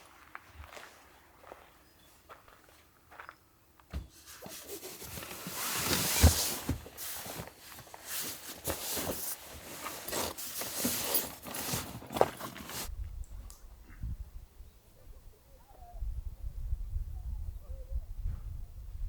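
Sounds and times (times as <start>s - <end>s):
rustling and rubbing: 4.0s - 12.9s.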